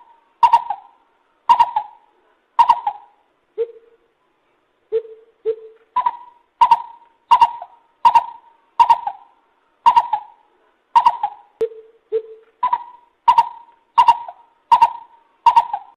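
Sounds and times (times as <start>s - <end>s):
bird higher hoots: 0.0s - 4.0s, 4.9s - 10.4s, 11.0s - 15.9s
bird low hoots: 0.0s - 4.0s, 4.9s - 10.4s, 11.0s - 15.9s.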